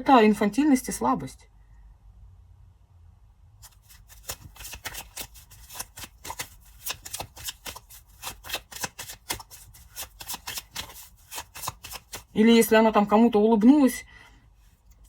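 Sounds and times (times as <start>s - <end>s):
cards being shuffled: 3.6s - 12.4s.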